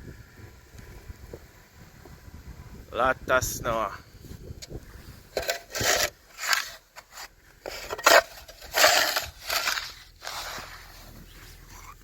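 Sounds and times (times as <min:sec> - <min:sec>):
snow shovel scraping snow: 0:05.4 - 0:12.0.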